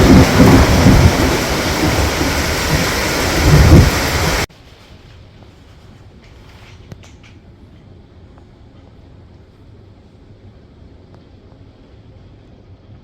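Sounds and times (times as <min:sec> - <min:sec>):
low thunder rumbles: 0:00.0 - 0:04.5
torrential rain hissing: 0:00.0 - 0:04.5.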